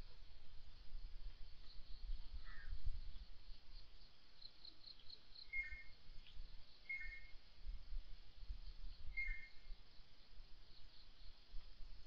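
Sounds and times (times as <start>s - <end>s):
bird chirps: 1.6s - 7.4s, 8.6s - 10.0s.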